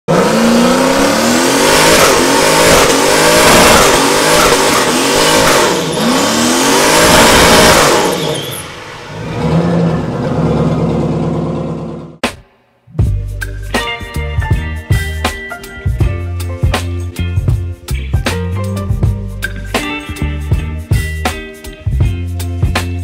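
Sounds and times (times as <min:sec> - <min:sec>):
car engine revving hard: 0:00.1 - 0:12.2
tyres spinning in a burnout: 0:00.1 - 0:12.2.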